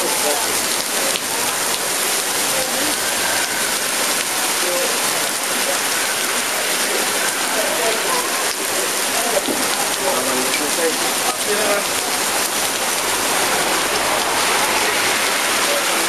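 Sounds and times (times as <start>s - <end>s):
faint voices: 0.0s - 16.0s
heavy rain on street: 0.0s - 16.0s.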